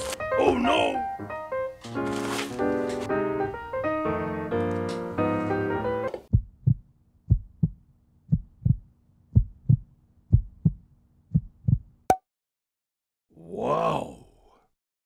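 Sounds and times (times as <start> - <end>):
heartbeat double thumps: 6.3 - 11.9.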